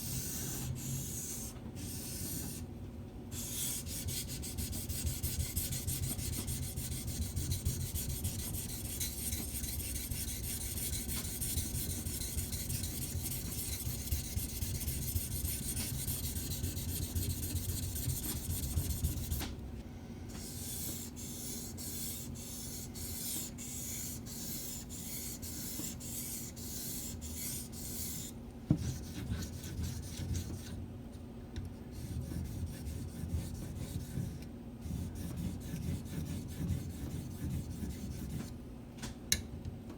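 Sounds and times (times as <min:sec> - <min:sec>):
knife grinding on whetstone: 0:03.6 - 0:19.4.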